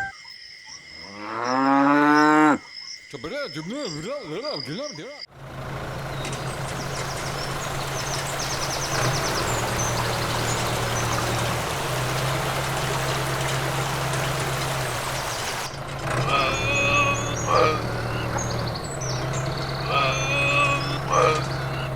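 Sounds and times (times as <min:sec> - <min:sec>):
running water rushing: 0:05.8 - 0:21.9.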